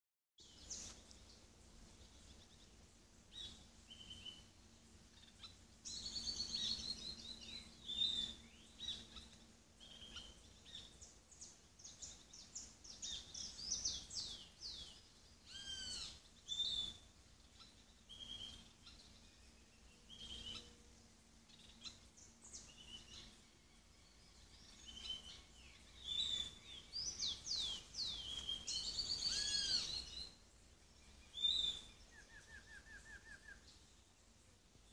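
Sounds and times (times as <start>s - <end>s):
downward sweeping bird chirps: 24.7s - 30.4s.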